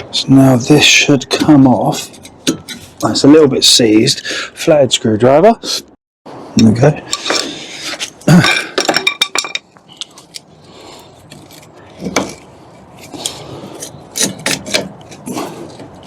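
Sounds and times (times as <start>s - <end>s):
metal tools clinking: 8.0s - 10.4s.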